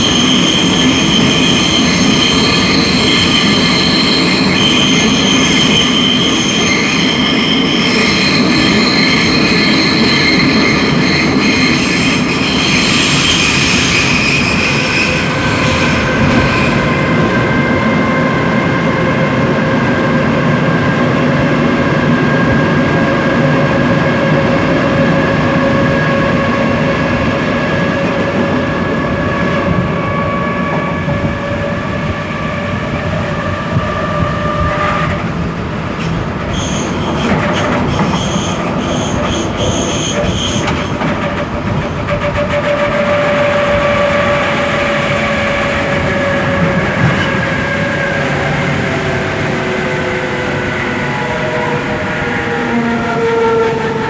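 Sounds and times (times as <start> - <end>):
high pulsing squeal: 0.0 - 20.0
electric train whine: 0.0 - 54.0.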